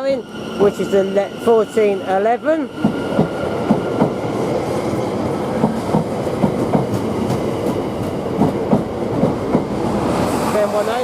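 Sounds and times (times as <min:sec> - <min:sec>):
train rumble: 0:00.0 - 0:11.0
train wheels clicking over rail joints: 0:02.8 - 0:04.2, 0:05.6 - 0:09.8.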